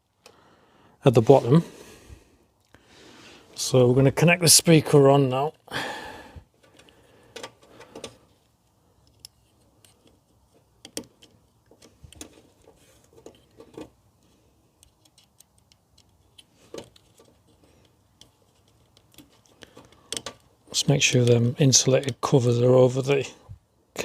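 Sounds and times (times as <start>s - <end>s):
small clicks of wiring handling: 6.6s - 21.4s.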